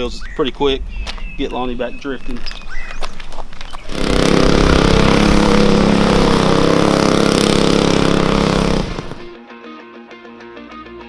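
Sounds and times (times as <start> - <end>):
small gas engine at high revs: 3.1 - 9.4.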